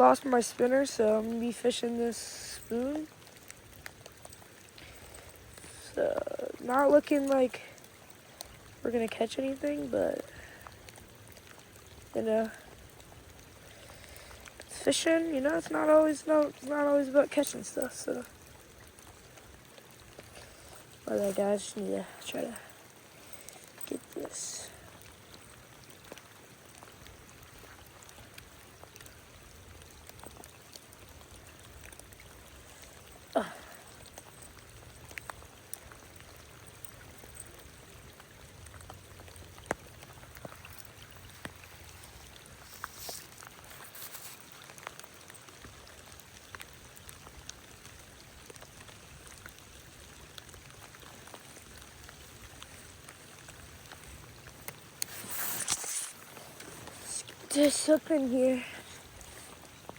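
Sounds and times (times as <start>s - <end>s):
creek water: 0.0s - 59.9s
light rain: 0.0s - 59.9s
raindrop taps: 22.5s - 59.9s.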